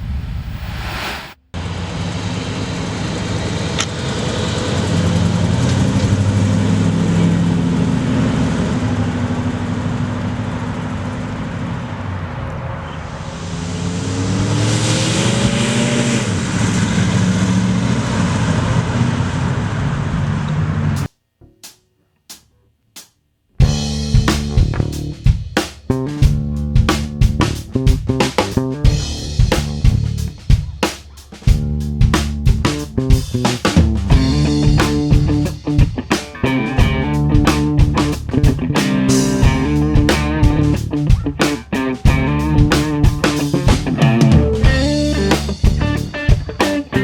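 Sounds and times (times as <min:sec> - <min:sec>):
road and wind noise: 0:00.0 - 0:21.1
car engine running: 0:01.6 - 0:13.6, 0:34.1 - 0:47.0.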